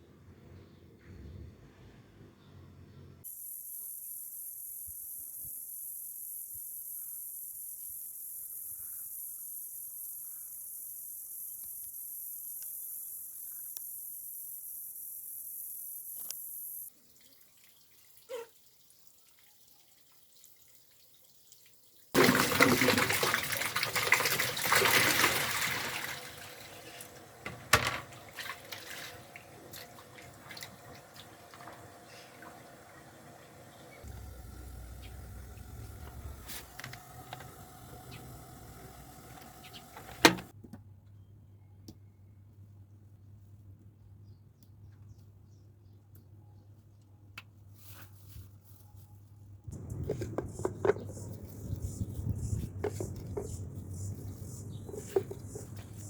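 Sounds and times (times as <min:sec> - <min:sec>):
water pouring and splashing: 0:17.0 - 0:40.5.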